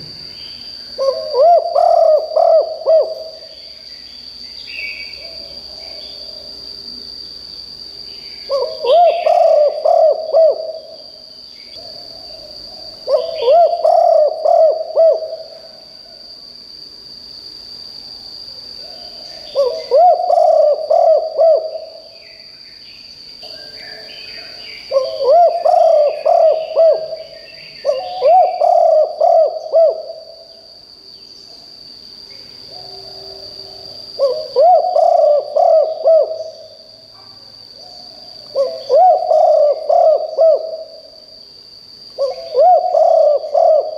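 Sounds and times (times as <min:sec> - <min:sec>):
dove cooing: 0:01.0 - 0:03.4, 0:08.5 - 0:11.0, 0:11.8 - 0:15.7, 0:19.5 - 0:22.1, 0:24.9 - 0:30.4, 0:34.2 - 0:36.7, 0:38.5 - 0:41.0, 0:42.2 - 0:43.9
faint bird chirps: 0:18.8 - 0:31.6.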